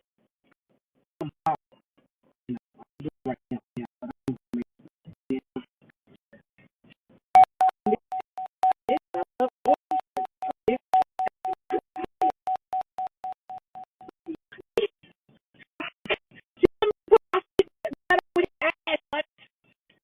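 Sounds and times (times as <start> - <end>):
rapid electronic warning beeps: 9.7 - 14.1.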